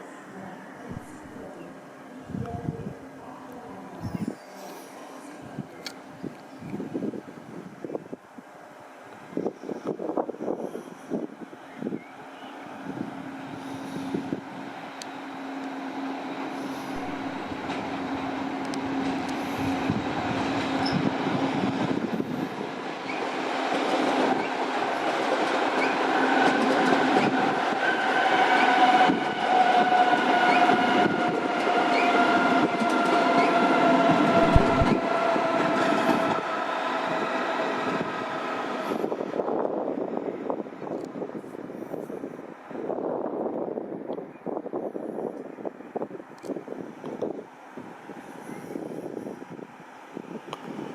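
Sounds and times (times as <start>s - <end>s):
train running: 0.0s - 50.9s.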